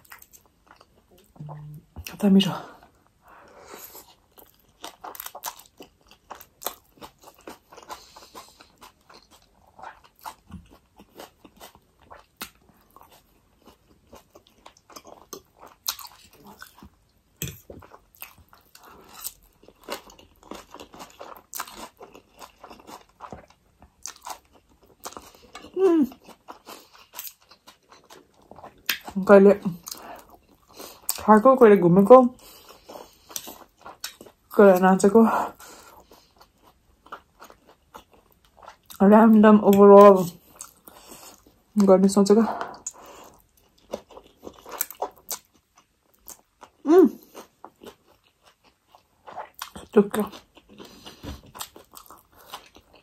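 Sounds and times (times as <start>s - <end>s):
person chewing noodles: 0.0s - 2.1s, 2.8s - 31.2s, 32.3s - 34.6s, 35.4s - 39.0s, 40.2s - 41.8s, 42.5s - 53.0s.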